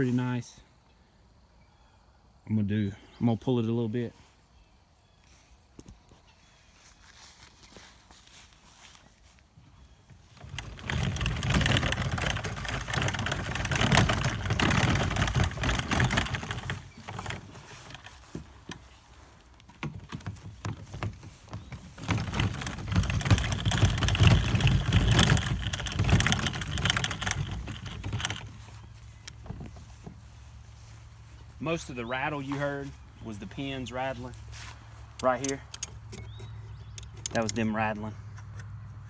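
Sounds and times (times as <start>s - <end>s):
metal frame rattling on wheels: 10.0s - 38.0s.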